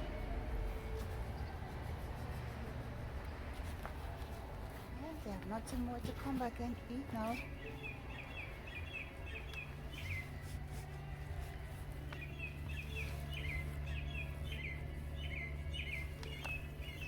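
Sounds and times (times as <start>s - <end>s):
steady low hum: 0.0s - 17.0s
bird chirping call: 7.3s - 10.4s, 12.2s - 17.0s.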